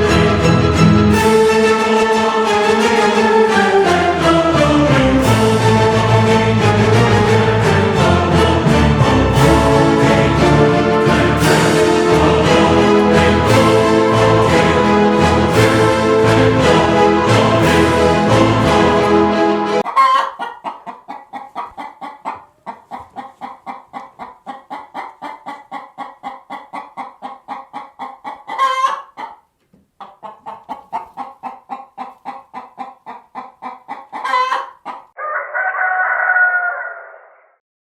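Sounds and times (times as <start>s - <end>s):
chickens clucking: 19.8s - 37.2s
rooster crowing: 19.9s - 20.4s, 34.2s - 37.6s.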